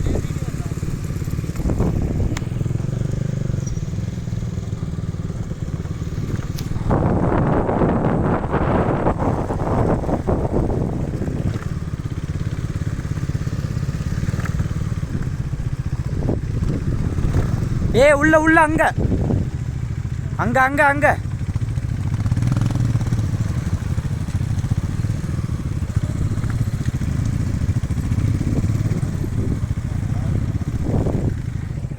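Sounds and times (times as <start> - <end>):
motorcycle engine droning: 0.0 - 31.9.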